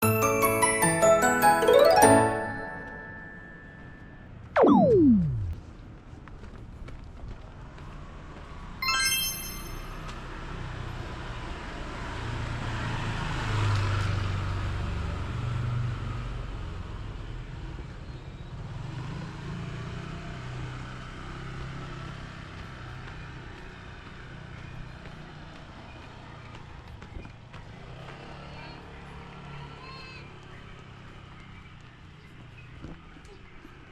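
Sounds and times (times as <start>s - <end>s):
high ringing tone: 1.8s - 5.6s, 8.8s - 10.0s.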